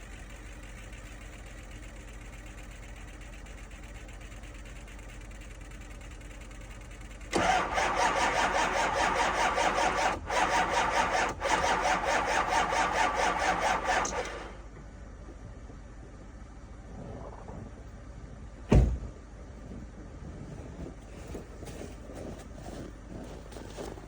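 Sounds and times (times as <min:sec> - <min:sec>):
diesel engine cranking on starter: 0:00.0 - 0:14.8
faint steady hum: 0:14.4 - 0:24.0.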